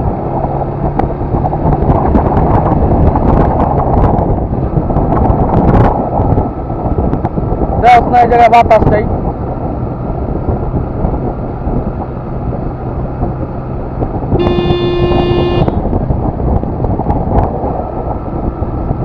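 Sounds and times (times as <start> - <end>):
road rumble: 0.0 - 19.0
wind rush: 0.0 - 19.0
vehicle horn blast: 14.4 - 15.8.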